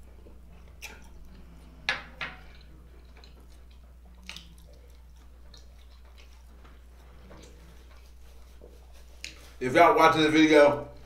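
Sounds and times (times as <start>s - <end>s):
man chewing: 0.0s - 9.6s
low steady hum: 0.0s - 11.0s
wet mouth smacks: 0.7s - 6.8s, 9.2s - 9.4s.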